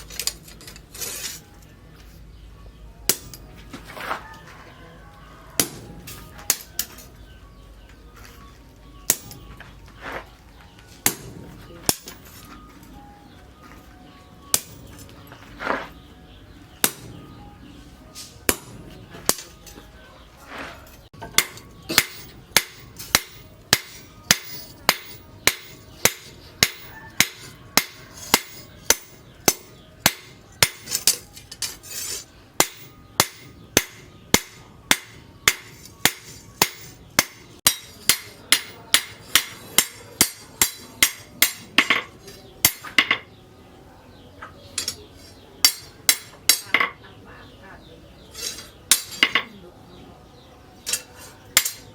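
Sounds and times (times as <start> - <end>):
hammer striking steel on anvil: 3.1 - 3.7, 5.6 - 7.6, 9.0 - 9.6, 11.0 - 12.6, 14.5 - 15.1, 16.7 - 17.4, 18.2 - 20.0, 21.0 - 43.4, 44.7 - 47.0, 48.3 - 49.5, 50.8 - 51.9.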